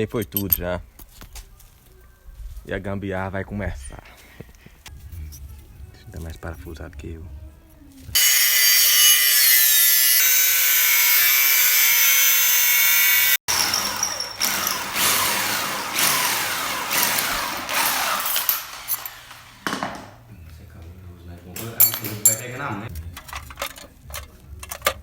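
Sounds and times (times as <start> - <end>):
power tool whining: 8.2 - 19.8.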